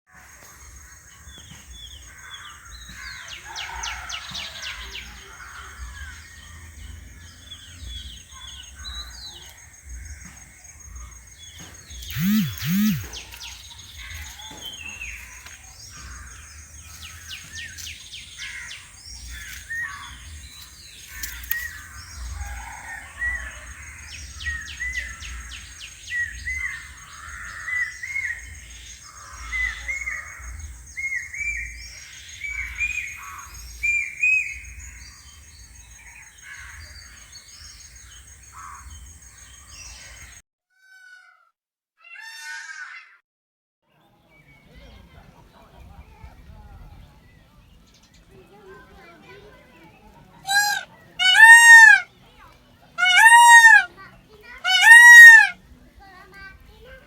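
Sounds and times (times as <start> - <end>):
birds chirping and trilling: 0.2 - 40.4, 44.0 - 57.0
loud bird calls: 0.2 - 40.4, 50.0 - 52.1, 52.9 - 55.8.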